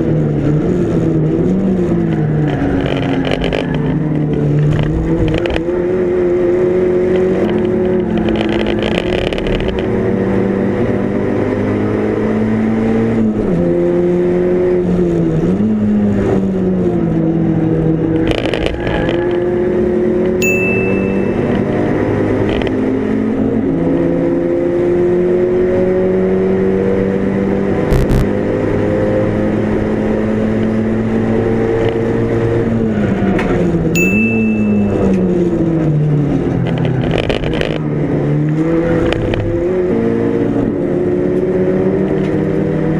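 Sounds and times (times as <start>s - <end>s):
race car engine at full throttle: 0.0s - 42.9s
high beep: 20.4s - 22.0s, 27.9s - 28.2s, 34.0s - 35.2s.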